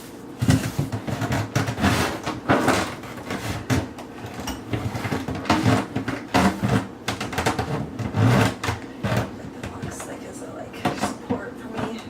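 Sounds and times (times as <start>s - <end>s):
parts and tools knocking and rattling: 0.4s - 10.0s.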